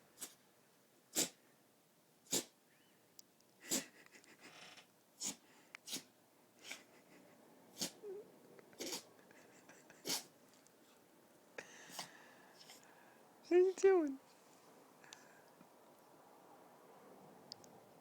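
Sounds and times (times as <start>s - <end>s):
puppy sneezing: 1.1s - 1.4s, 2.3s - 2.6s, 3.6s - 4.0s, 5.2s - 6.9s, 7.7s - 8.2s, 8.8s - 9.1s, 9.9s - 10.4s, 11.9s - 12.8s.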